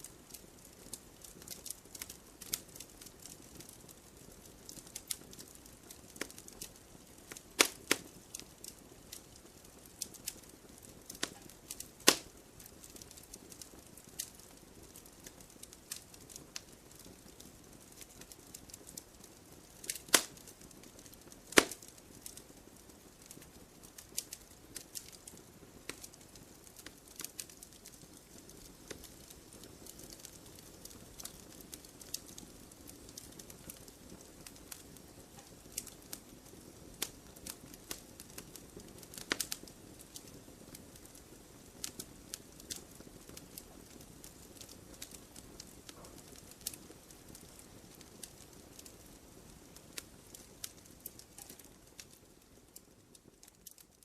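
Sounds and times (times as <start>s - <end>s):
wood fire crackling: 0.0s - 54.0s
fire hissing: 4.6s - 18.8s, 19.4s - 22.4s.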